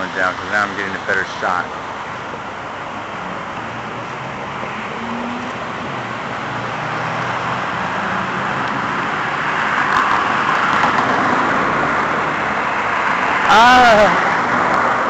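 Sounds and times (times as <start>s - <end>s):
passing cars rushing: 0.0s - 15.0s.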